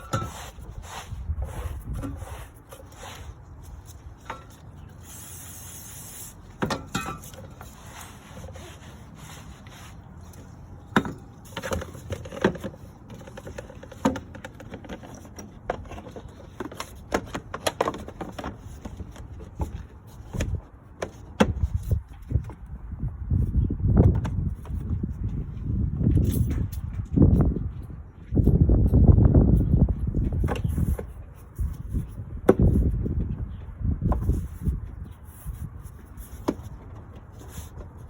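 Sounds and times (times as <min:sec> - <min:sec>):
scraping: 0:00.0 - 0:14.0.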